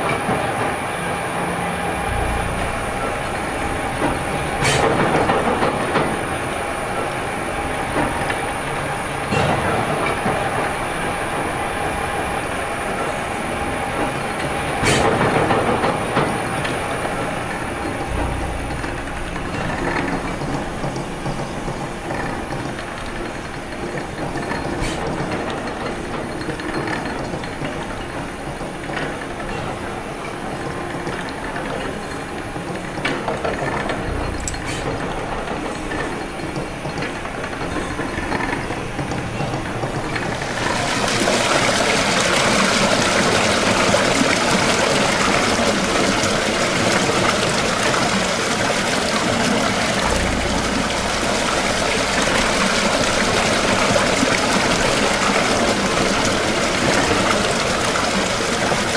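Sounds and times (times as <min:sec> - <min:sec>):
steam engine gearing clatter: 0:14.0 - 0:58.9
splashing water: 0:40.4 - 0:58.9.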